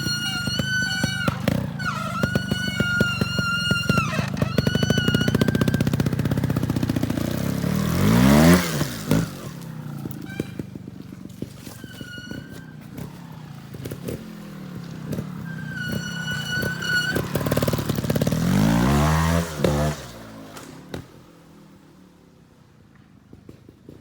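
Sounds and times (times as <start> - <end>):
knocks and clatter: 0.0 - 18.8
short high squeals: 0.0 - 19.2
motorbike engine revving: 0.0 - 22.4.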